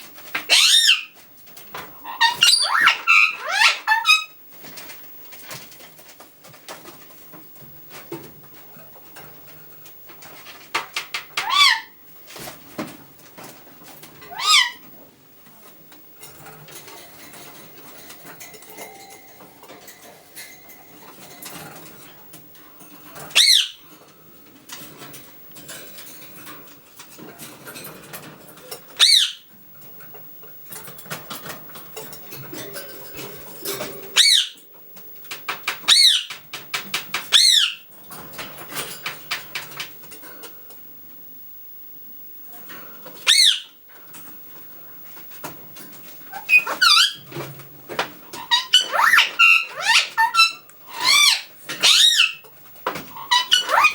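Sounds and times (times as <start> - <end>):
parakeets screeching: 0.3 - 1.2, 1.8 - 4.4, 11.0 - 12.0, 14.3 - 14.8, 23.2 - 23.8, 29.0 - 29.5, 34.1 - 34.6, 35.8 - 36.4, 37.2 - 37.8, 43.2 - 43.8, 46.3 - 47.3, 48.3 - 52.4, 53.0 - 53.9.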